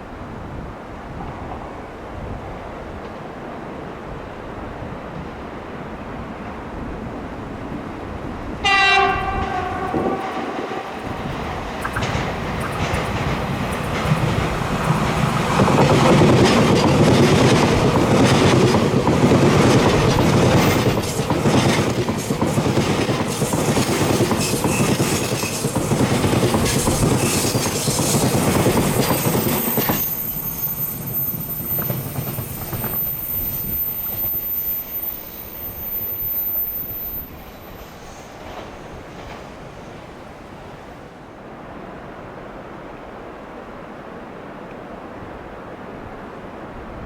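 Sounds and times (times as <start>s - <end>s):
faint train rumble: 0.0s - 47.0s
train wheels clacking over rail joints: 10.2s - 34.9s.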